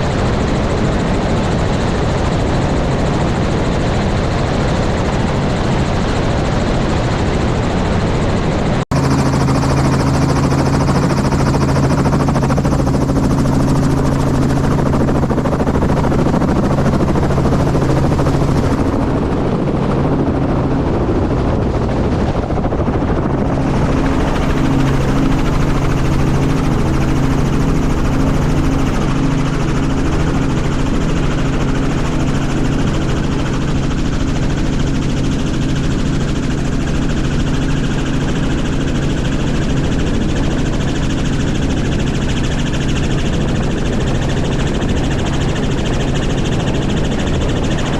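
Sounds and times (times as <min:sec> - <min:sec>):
helicopter rotor and turbine drone: 0:00.0 - 0:47.9.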